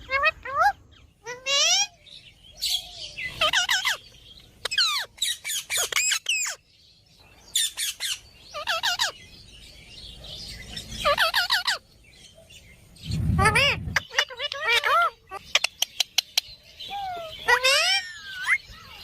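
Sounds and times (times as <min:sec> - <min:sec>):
parrot squawking: 0:11.0 - 0:11.8, 0:13.4 - 0:15.5, 0:17.0 - 0:18.6.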